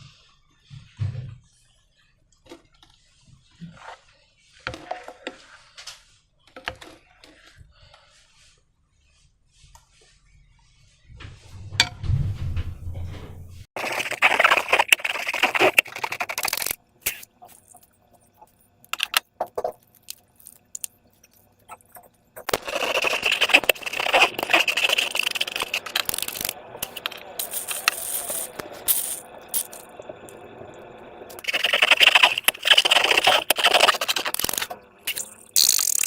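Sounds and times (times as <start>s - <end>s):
slime crackling and scraping: 13.8s - 29.9s, 31.3s - 36.0s.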